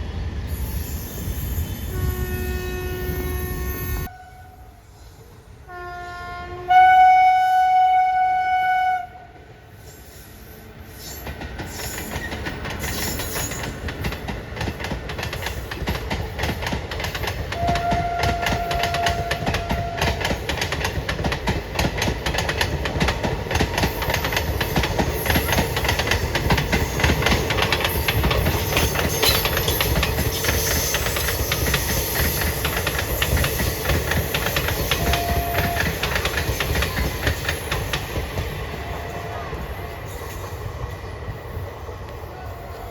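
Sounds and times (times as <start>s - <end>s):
train horn blowing: 1.8s - 5.0s, 5.6s - 9.4s, 17.6s - 20.4s, 34.8s - 36.3s
wheels clacking over rail joints: 11.1s - 38.8s
train running rumble: 11.2s - 42.9s.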